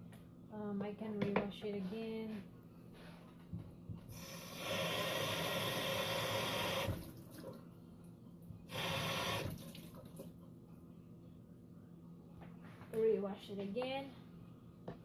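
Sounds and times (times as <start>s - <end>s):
faucet water running: 4.2s - 7.6s, 8.7s - 10.2s.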